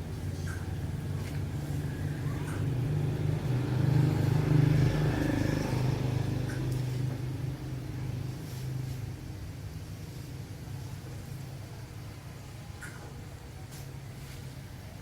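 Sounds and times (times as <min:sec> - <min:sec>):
engine humming: 0:00.0 - 0:10.8.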